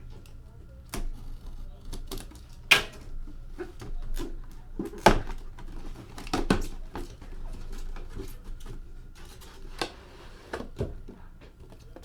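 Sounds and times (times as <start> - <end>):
box packaging clicks and knocks: 2.7 - 12.0.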